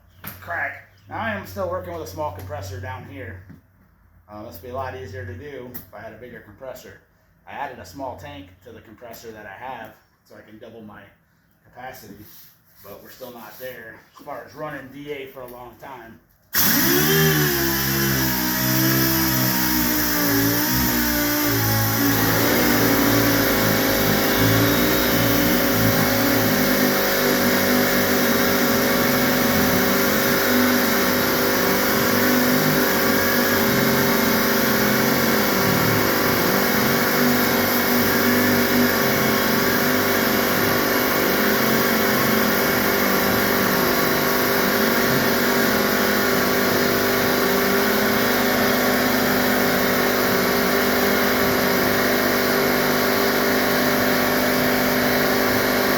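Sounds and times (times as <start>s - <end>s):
air sander hissing and whining: 16.6s - 55.9s.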